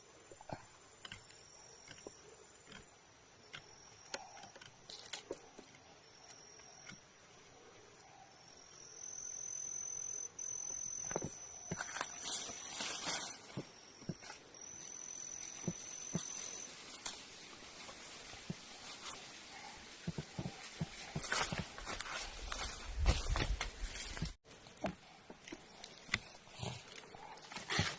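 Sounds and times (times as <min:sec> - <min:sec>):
insect trilling: 0:08.0 - 0:21.7.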